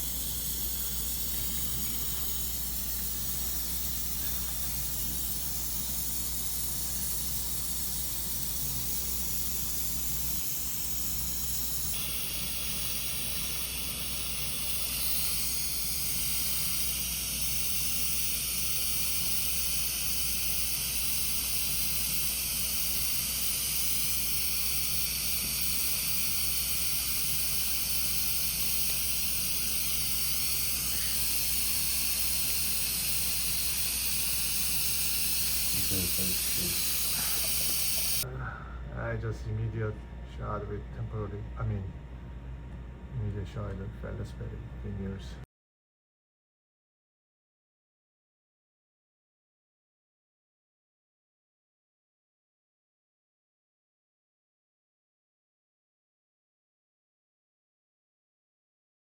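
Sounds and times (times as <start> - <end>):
steady hiss: 0.0 - 11.0, 20.8 - 38.2.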